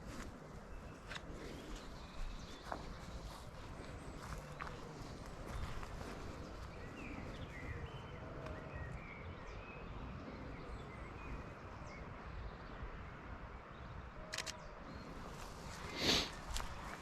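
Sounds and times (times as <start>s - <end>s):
low outdoor rumble: 0.0s - 17.0s
sharp clicks: 14.3s - 14.6s.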